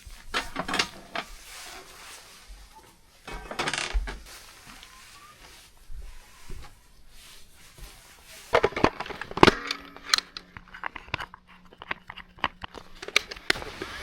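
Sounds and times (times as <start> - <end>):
camping gear clicking and knocking: 0.0 - 1.3, 3.2 - 4.3, 8.4 - 14.0.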